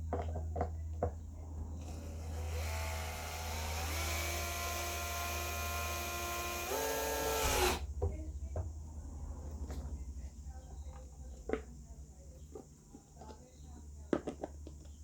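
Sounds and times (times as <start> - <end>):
steady low hum: 0.0 - 15.0
electric drill whining: 1.8 - 7.8.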